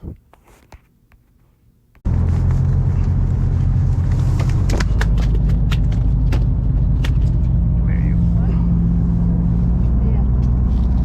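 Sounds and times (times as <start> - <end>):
boat engine rumble: 2.1 - 11.0.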